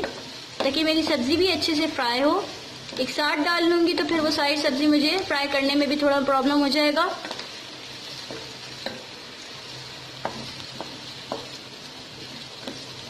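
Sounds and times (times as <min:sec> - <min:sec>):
vegetables sizzling in hot oil: 0:00.0 - 0:13.0
spoon stirring in pan: 0:07.2 - 0:13.0.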